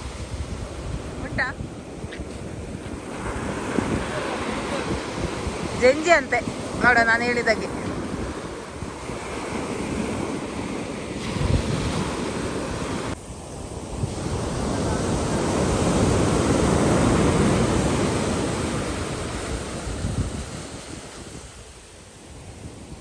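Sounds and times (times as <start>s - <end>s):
sea waves breaking: 0.0s - 23.0s
wind buffeting microphone: 0.0s - 23.0s.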